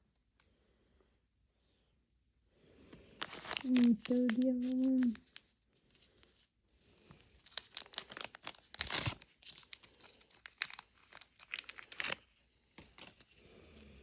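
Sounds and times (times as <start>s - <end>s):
wrapping crinkling and tearing: 3.1s - 5.5s, 7.2s - 13.4s.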